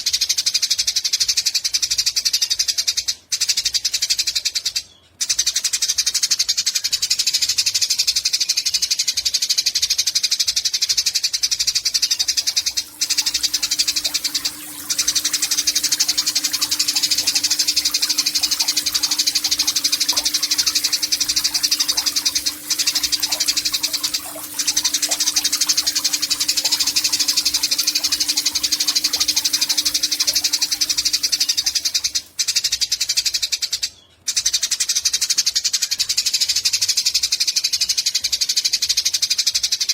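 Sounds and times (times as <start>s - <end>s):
faint low hum: 11.8s - 32.5s.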